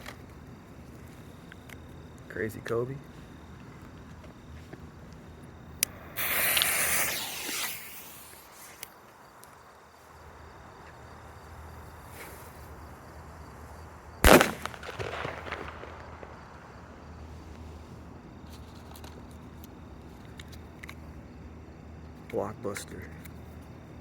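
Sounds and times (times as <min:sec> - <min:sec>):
firework hissing spray: 0:05.8 - 0:09.1
firework crackle: 0:05.8 - 0:09.3, 0:14.2 - 0:17.6
firework bang: 0:05.9 - 0:08.8, 0:14.2 - 0:17.0.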